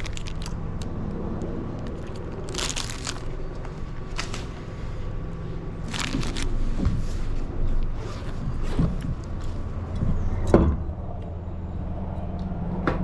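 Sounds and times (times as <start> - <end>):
ice cream crunching: 0.0 - 4.4, 5.8 - 6.6
steady low hum: 0.0 - 13.0.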